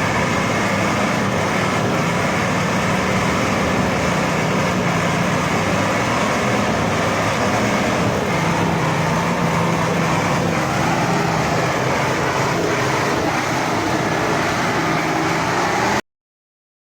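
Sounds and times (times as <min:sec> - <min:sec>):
off-road vehicle engine running: 0:00.0 - 0:16.0.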